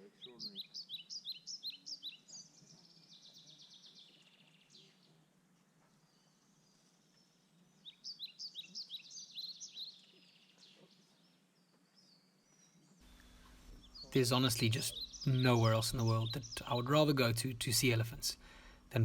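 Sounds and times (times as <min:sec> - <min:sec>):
bird trill: 0:12.5 - 0:18.4
songbird singing high notes: 0:13.1 - 0:18.4.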